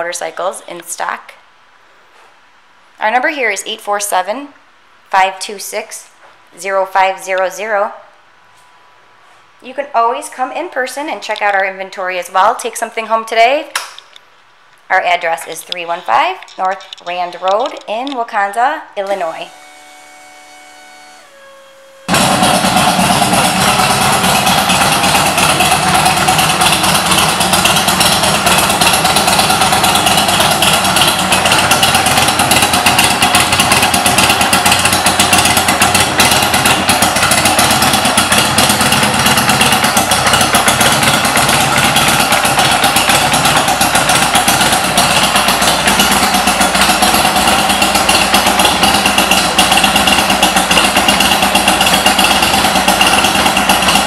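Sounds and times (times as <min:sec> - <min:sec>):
motorcycle engine idling: 0:22.0 - 0:54.0.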